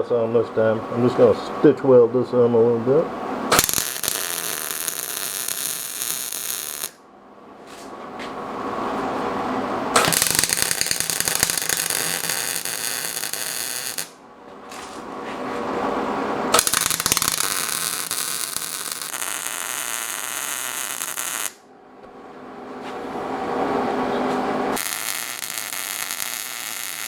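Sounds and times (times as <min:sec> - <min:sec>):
welder arc buzzing and crackling: 0:03.5 - 0:07.0, 0:09.9 - 0:15.0, 0:16.5 - 0:21.6, 0:24.7 - 0:27.0.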